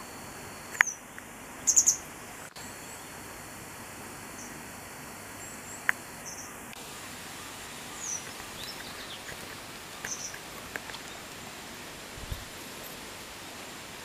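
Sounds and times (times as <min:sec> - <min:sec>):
outdoor hiss: 0:00.0 - 0:14.0
bird high chirps: 0:00.8 - 0:02.1, 0:05.4 - 0:06.6, 0:07.9 - 0:10.4.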